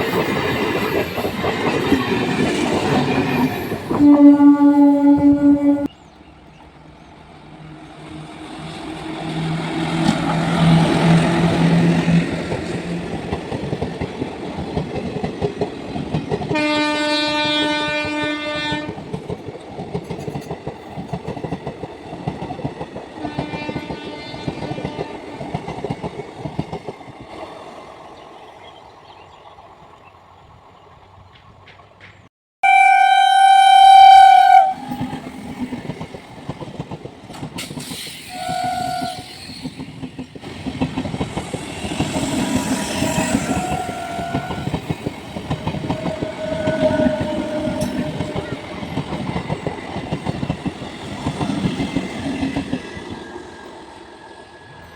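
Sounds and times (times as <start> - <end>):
train wheels clattering: 18.0 - 27.4, 34.8 - 53.2.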